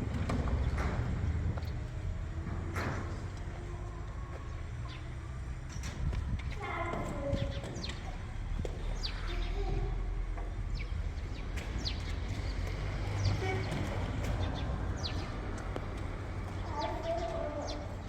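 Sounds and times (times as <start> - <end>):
small birds chirping: 3.6 - 18.0.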